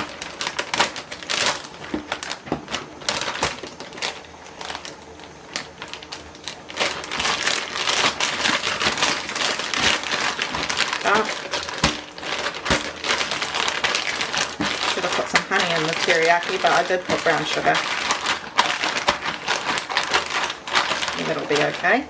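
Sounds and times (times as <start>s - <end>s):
plastic bags crinkling: 0.0s - 22.0s.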